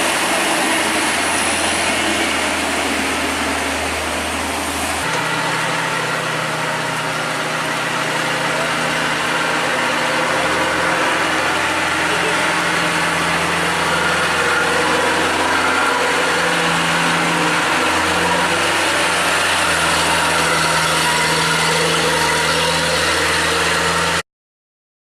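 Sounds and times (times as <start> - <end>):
truck engine running: 0.0 - 24.2.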